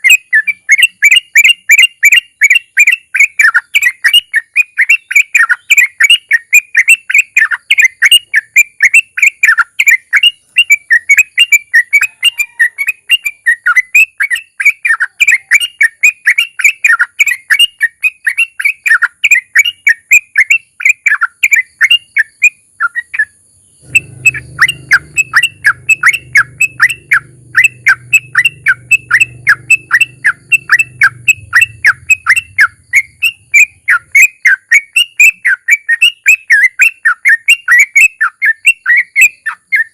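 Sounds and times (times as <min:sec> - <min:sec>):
bird singing rapid chirps: 0:00.0 - 0:39.9
low hum: 0:23.8 - 0:33.9.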